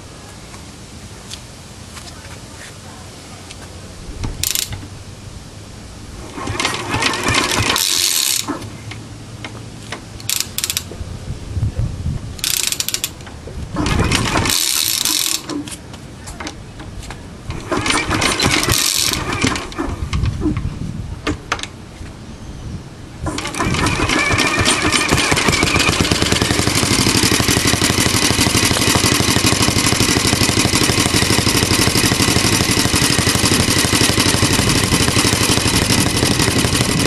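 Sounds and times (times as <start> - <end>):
engine clatter and hiss: 6.2 - 11.2, 12.4 - 21.9, 23.2 - 37.0.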